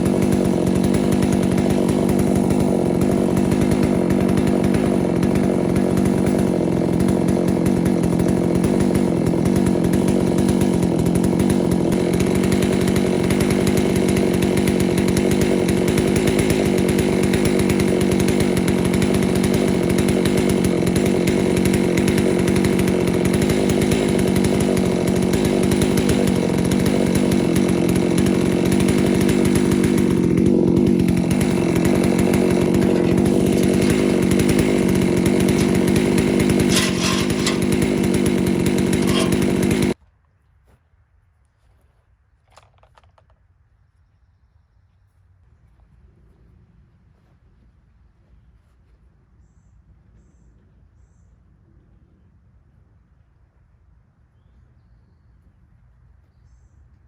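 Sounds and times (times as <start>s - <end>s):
chainsaw cutting wood under load: 0.0s - 40.0s, 42.5s - 43.4s.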